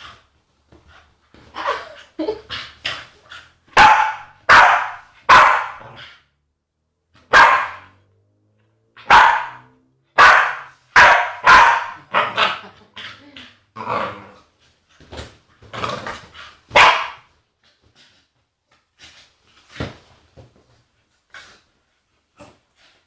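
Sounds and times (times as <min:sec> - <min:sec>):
dog barking sharply: 0:03.8 - 0:05.8, 0:07.3 - 0:08.0, 0:09.0 - 0:12.4, 0:16.8 - 0:17.3.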